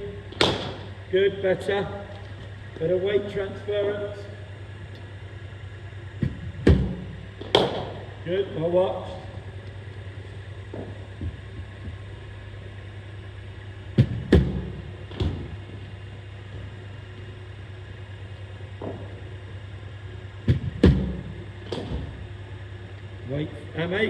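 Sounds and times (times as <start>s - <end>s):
bowling machine humming: 0.0s - 24.0s
ball fired and struck knocks: 0.3s - 1.0s, 6.2s - 8.2s, 14.0s - 15.6s, 20.4s - 22.3s.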